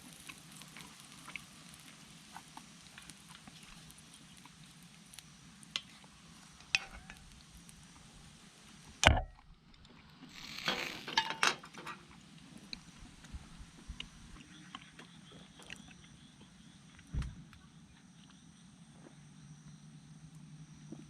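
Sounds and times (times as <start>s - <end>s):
camp cookware clicking and clinking: 6.6s - 7.2s, 10.3s - 12.2s.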